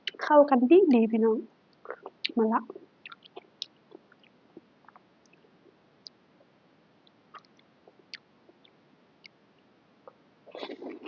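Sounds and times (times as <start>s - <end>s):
person chewing noodles: 1.8s - 6.2s, 7.3s - 9.4s.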